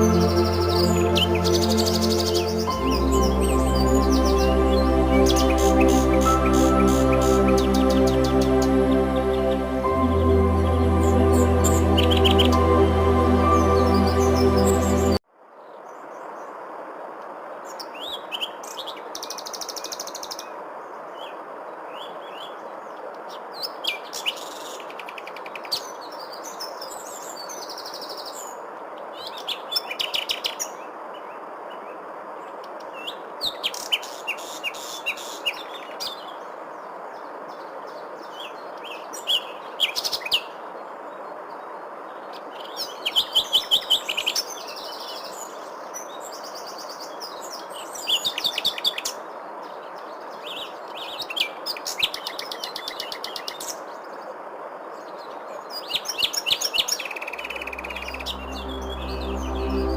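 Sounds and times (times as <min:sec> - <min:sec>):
songbirds chirping and singing: 0:00.0 - 0:15.2.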